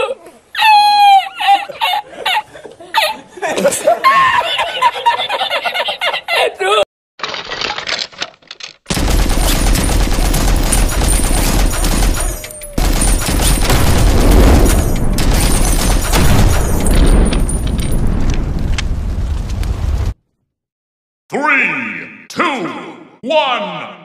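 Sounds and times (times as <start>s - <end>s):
machine-gun fire: 8.9s - 18.7s.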